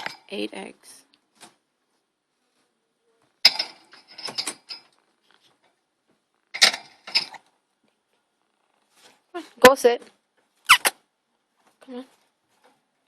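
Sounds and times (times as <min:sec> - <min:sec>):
parrot harsh scratchy chirps: 0:10.6 - 0:11.0.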